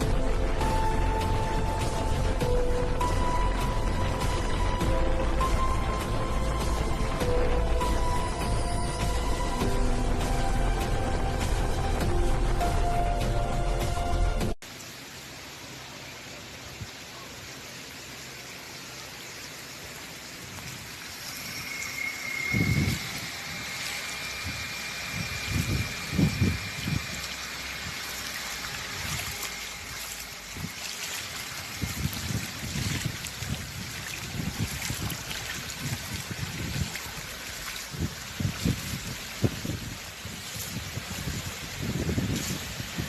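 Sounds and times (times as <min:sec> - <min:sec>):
low water rumbles: 0:00.0 - 0:43.0
rushing floodwater: 0:00.0 - 0:43.0.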